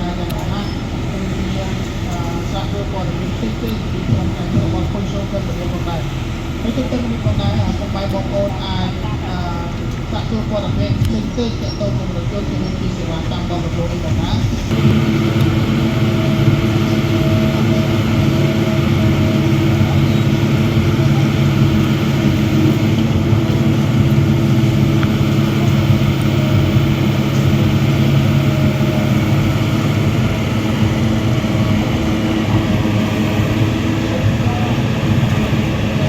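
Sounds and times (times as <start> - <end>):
heavy diesel machinery droning: 0.0 - 36.0.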